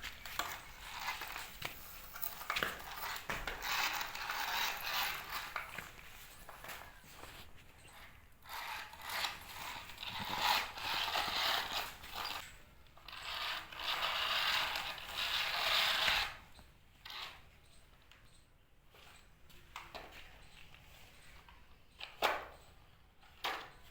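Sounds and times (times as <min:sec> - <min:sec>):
toy motors whirring: 0:00.2 - 0:17.8.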